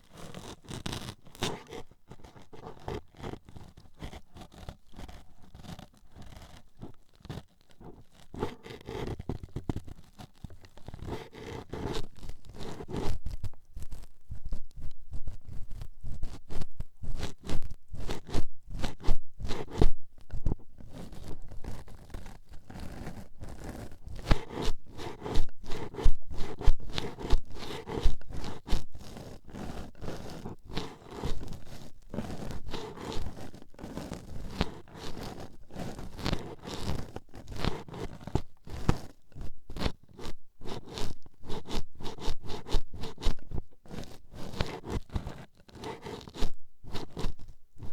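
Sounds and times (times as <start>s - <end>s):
toothpicks scraping microphone: 0.2s - 47.9s.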